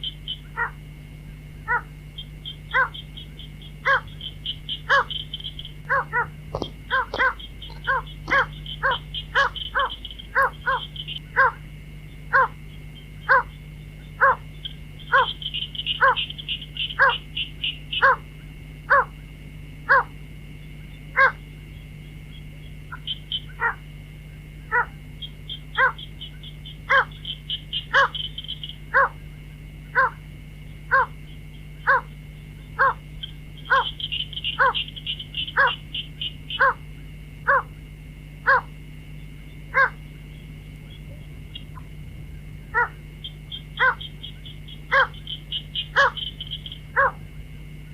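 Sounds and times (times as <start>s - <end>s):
steady high buzz: 0.0s - 47.9s
waterhen calling: 2.7s - 11.6s, 25.5s - 29.2s, 32.8s - 36.8s, 42.7s - 47.2s.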